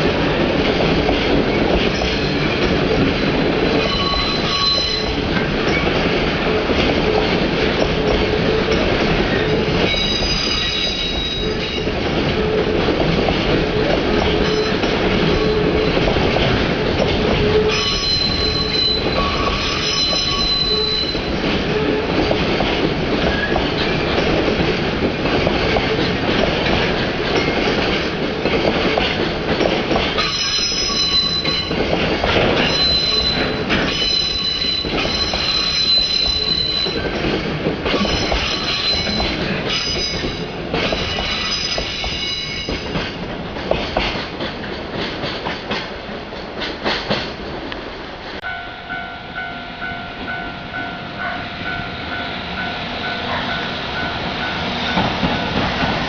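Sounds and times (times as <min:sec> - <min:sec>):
freight train rolling past: 0:00.0 - 0:56.0
rail-joint clicks: 0:00.2 - 0:49.0, 0:52.6 - 0:56.0
train wheels squealing: 0:03.7 - 0:05.9, 0:09.8 - 0:11.8, 0:17.5 - 0:22.1, 0:30.2 - 0:31.8, 0:32.6 - 0:37.2, 0:37.9 - 0:42.9.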